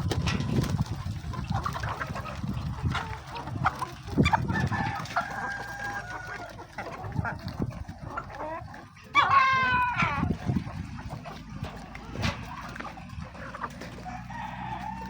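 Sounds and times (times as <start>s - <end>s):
chickens clucking: 0.0s - 15.0s
rooster crowing: 14.0s - 15.0s.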